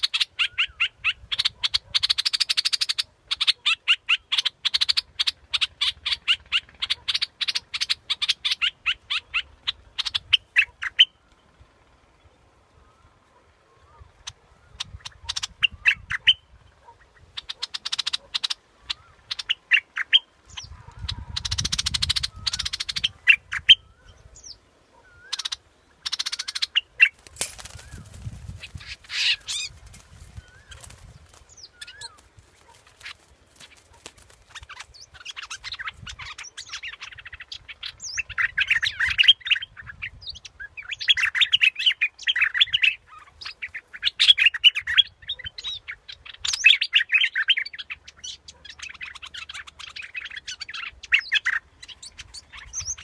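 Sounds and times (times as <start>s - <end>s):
bulbul singing and chattering: 25.4s - 36.1s.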